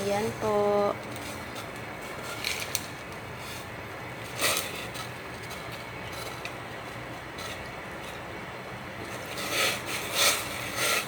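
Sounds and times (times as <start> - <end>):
pot of soup hissing: 7.2 - 11.0.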